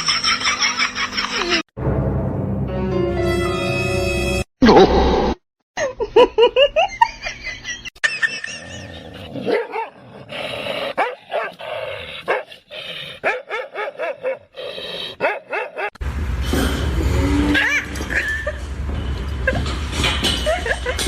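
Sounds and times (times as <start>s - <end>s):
dog barking: 9.4s - 10.0s, 11.0s - 11.6s, 12.3s - 12.5s, 13.2s - 14.5s, 15.2s - 15.9s.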